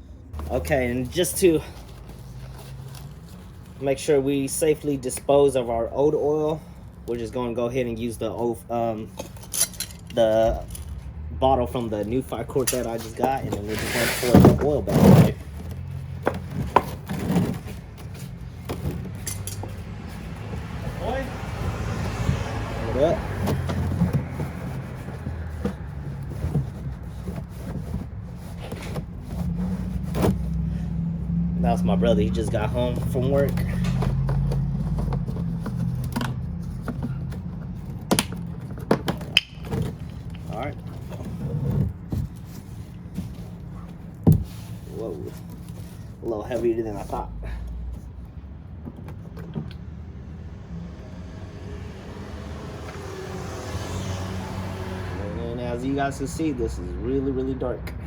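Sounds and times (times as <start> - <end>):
car engine running: 14.3 - 38.9.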